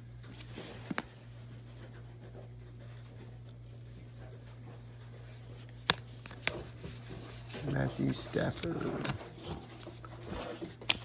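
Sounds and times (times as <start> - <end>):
steady low hum: 0.0 - 11.0
trading cards rustling and sliding: 0.2 - 2.0, 4.8 - 11.0.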